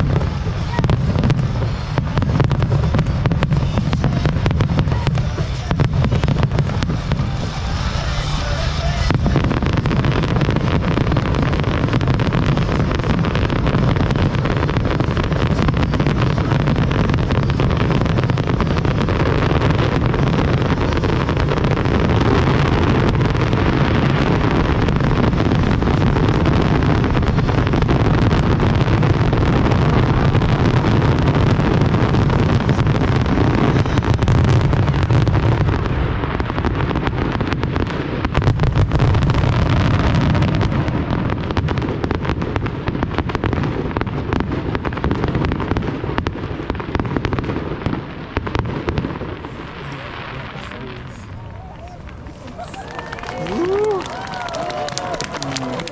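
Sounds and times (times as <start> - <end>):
fireworks bangs and crackles: 0.0 - 55.9.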